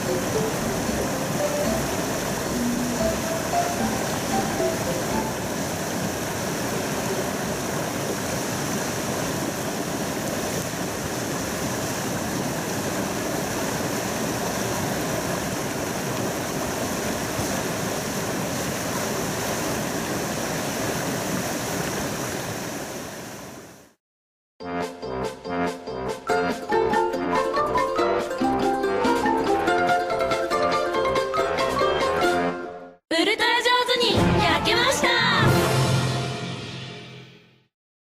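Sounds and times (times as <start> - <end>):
mountain stream rushing: 0.0 - 24.0.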